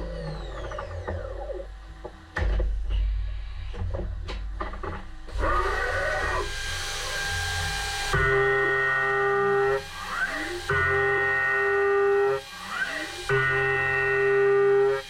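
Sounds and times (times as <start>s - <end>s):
machine low hum: 0.0s - 15.0s
machine whines changing pitch: 5.3s - 15.0s.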